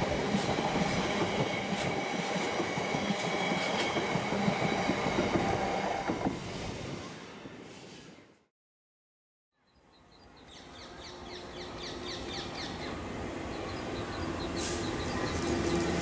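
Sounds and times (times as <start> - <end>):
bird chirping: 9.6 - 16.0
brief hiss: 14.6 - 15.0.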